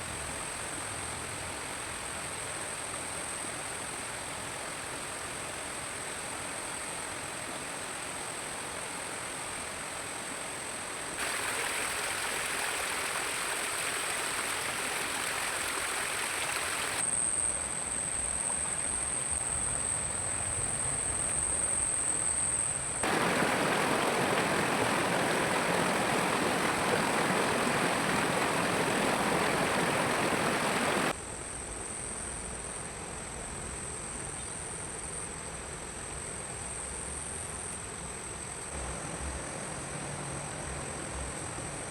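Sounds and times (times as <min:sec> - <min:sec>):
stream water flowing: 0:11.0 - 0:17.0, 0:23.0 - 0:31.1
high insect drone: 0:16.7 - 0:32.8.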